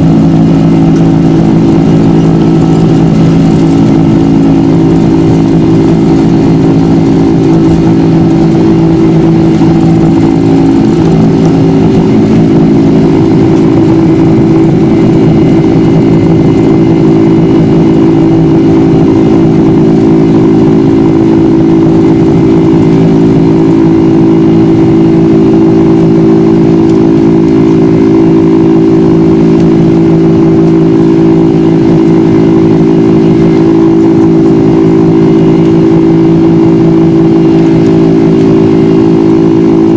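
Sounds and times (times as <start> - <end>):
jet engines humming in cabin: 0.0 - 39.9.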